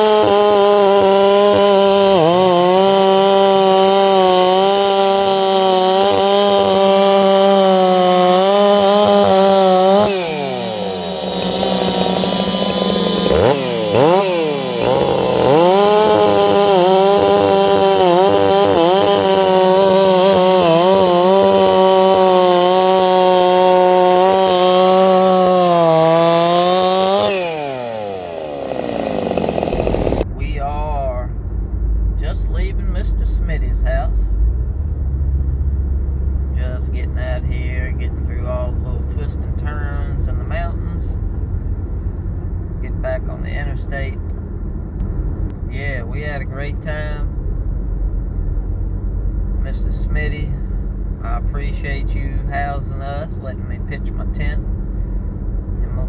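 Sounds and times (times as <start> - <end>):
chainsaw revving: 0.0 - 30.3.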